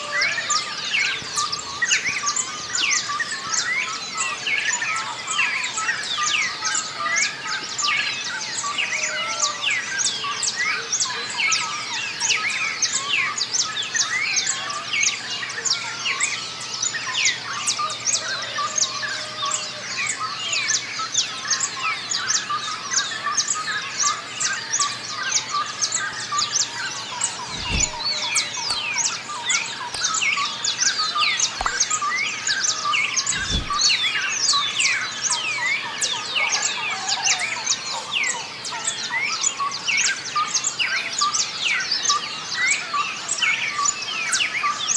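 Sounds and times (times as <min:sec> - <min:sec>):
songbirds chirping and singing: 0:26.2 - 0:34.0
low thumps: 0:27.4 - 0:28.8, 0:33.3 - 0:33.9.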